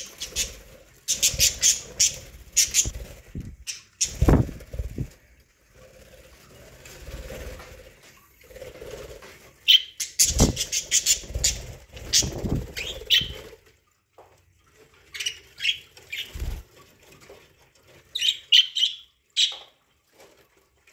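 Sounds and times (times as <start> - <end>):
budgerigars chirping: 0.0 - 2.9, 9.7 - 13.4, 18.2 - 19.7
wing flutters: 0.0 - 13.9, 14.6 - 18.6.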